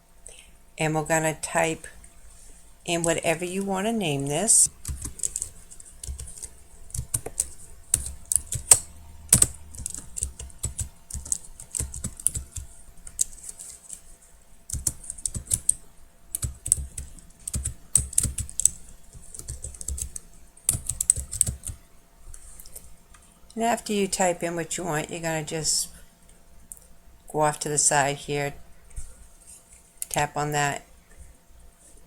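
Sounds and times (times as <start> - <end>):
typing on computer keyboard: 4.7 - 14.0, 14.7 - 21.8.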